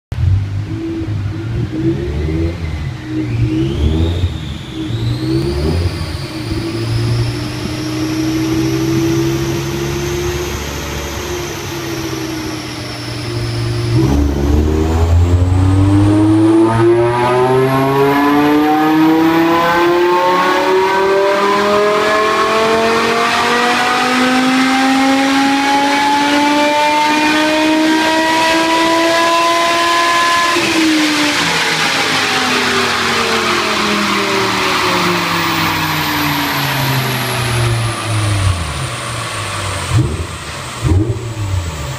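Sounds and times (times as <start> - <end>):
car engine rumbling and accelerating: 0.1 - 41.9.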